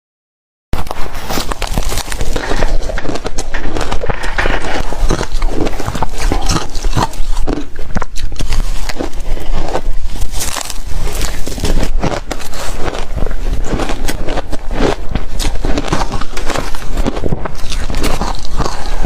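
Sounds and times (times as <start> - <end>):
ice being chewed: 0.8 - 19.0.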